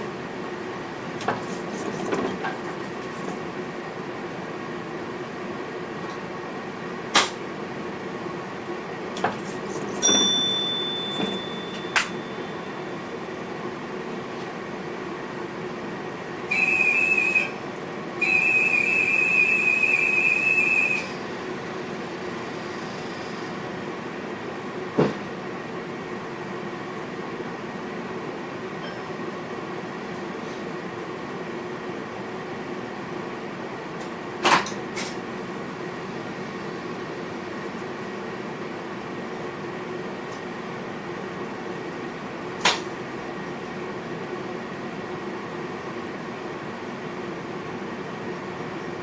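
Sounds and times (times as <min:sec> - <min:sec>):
train cab hum: 0:00.0 - 0:49.0
high-pitched whistle blasts: 0:16.5 - 0:17.5, 0:18.2 - 0:21.2.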